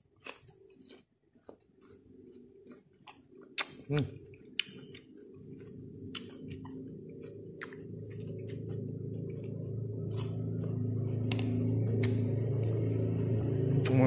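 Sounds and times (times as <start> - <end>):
chewing crunchy fruit: 0.0 - 14.0
wet mouth clicks: 0.2 - 8.9, 11.3 - 12.8
low hum: 3.8 - 14.0.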